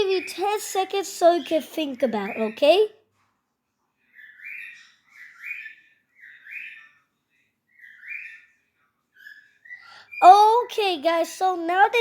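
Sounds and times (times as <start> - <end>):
cockatiel chirping: 4.1 - 7.1, 7.7 - 9.8.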